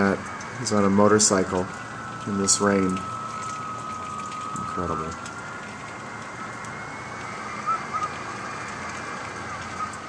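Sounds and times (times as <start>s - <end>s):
rain and wind through window: 0.0s - 10.0s
thin high whistle: 7.5s - 8.3s.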